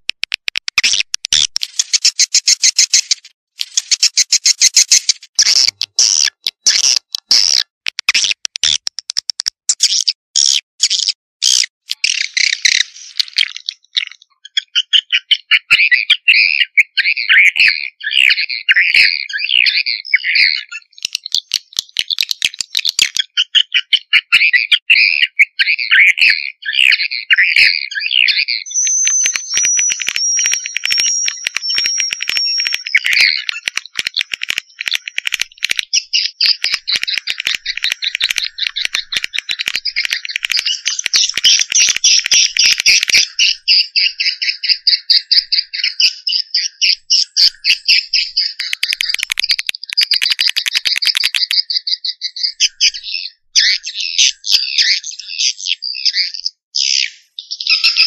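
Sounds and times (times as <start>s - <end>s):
swiftlets chirping and twittering: 0.7s - 16.5s, 28.1s - 56.4s.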